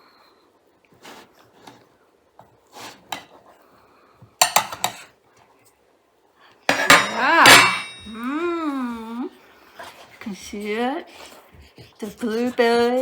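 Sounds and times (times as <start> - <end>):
cutlery scraping a pan: 4.4 - 5.1, 6.7 - 8.1
metal clang ringing: 6.7 - 8.3.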